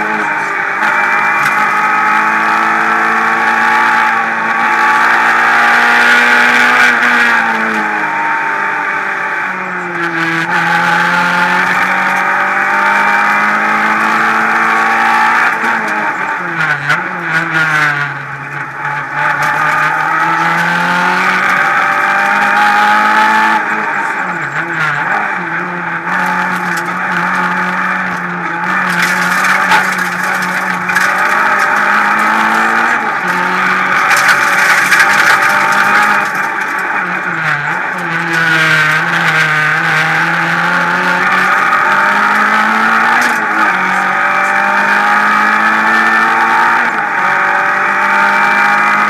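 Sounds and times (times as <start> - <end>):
rally car engine revving: 0.0 - 49.0.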